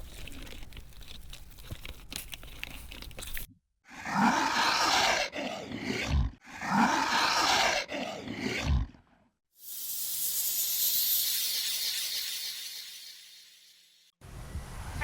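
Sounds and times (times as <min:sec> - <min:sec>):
animal roaring: 0:03.9 - 0:09.2.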